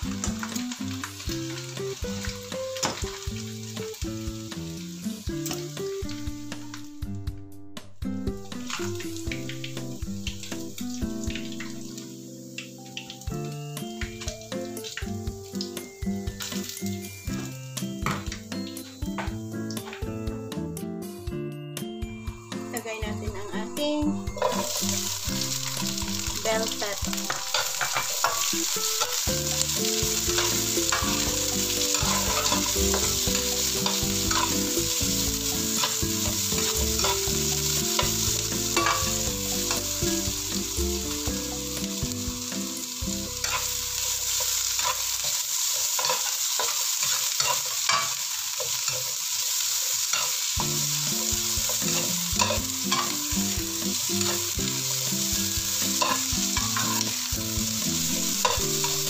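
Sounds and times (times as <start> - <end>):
food sizzling in a pan: 0.0 - 7.2, 8.0 - 59.0
spatula scraping and tapping pan: 27.1 - 40.3, 43.4 - 49.2, 50.1 - 54.8, 55.8 - 57.2, 58.2 - 59.0.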